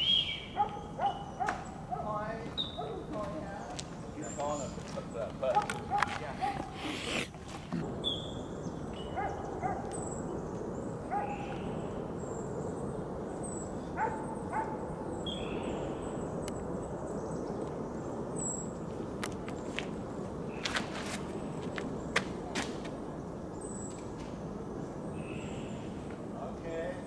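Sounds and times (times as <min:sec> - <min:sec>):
thin high bird chirps: 0:00.0 - 0:01.8
birds calling: 0:00.0 - 0:27.0
outdoor background hiss: 0:00.0 - 0:27.0.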